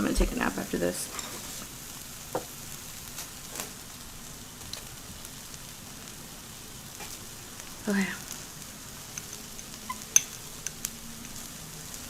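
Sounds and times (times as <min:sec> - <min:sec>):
food sizzling on a grill: 0:00.0 - 0:12.0.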